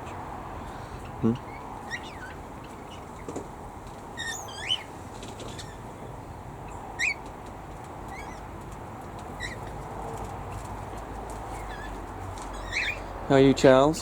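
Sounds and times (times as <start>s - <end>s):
short rising bird calls: 0.9s - 3.3s, 4.2s - 5.9s, 11.5s - 13.1s.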